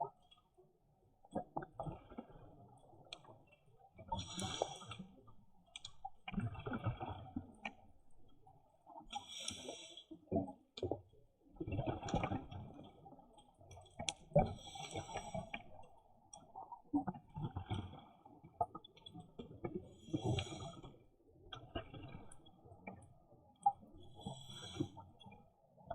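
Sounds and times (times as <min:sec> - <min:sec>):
hissing regulator inhalations: 0:04.2 - 0:05.0, 0:09.2 - 0:10.0.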